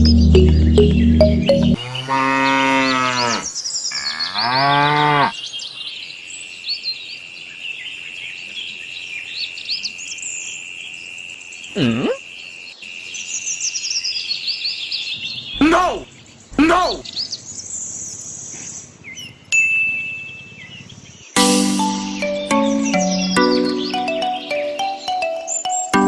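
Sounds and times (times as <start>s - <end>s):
background music with steady beat: 0.0s - 1.8s, 21.4s - 26.0s
birds chirping: 0.0s - 26.0s
cow mooing: 1.8s - 5.4s.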